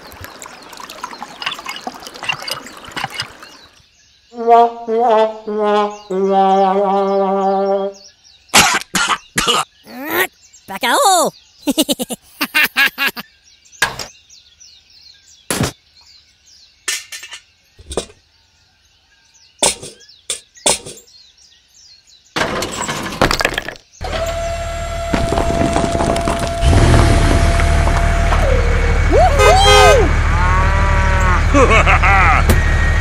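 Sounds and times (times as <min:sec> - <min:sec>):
motor drone with held tone: 0:24.0 - 0:33.0.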